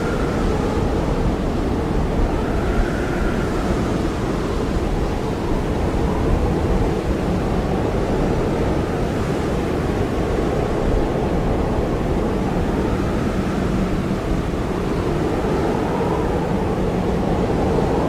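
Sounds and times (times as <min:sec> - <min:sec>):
blizzard wind blowing hard: 0:00.0 - 0:18.0
faint wavering wind whistle: 0:00.0 - 0:18.0.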